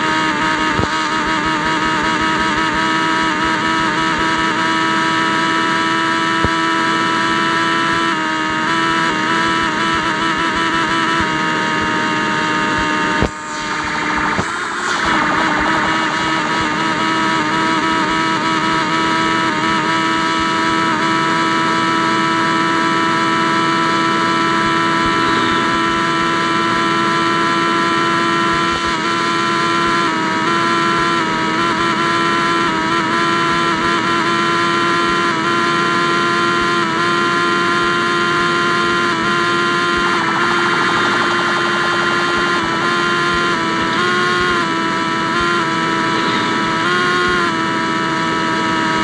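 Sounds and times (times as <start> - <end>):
motorcycle engine droning: 34.6 - 49.0.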